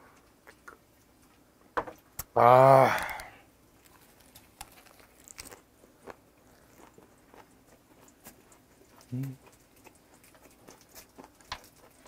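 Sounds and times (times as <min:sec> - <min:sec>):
chewing crunches: 0:02.9 - 0:12.0.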